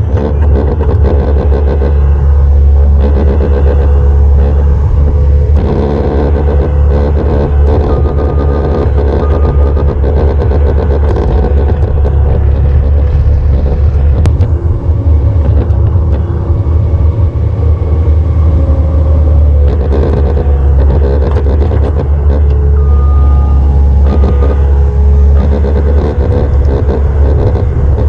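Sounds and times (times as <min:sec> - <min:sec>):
truck engine and road rumble: 0:00.0 - 0:28.0.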